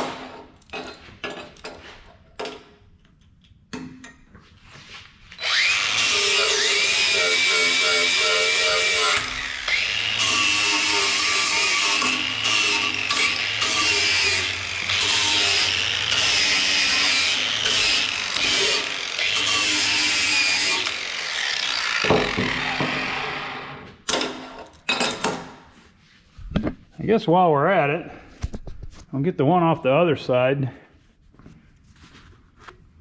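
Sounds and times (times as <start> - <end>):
electric sander grinding metal: 5.4 - 23.8.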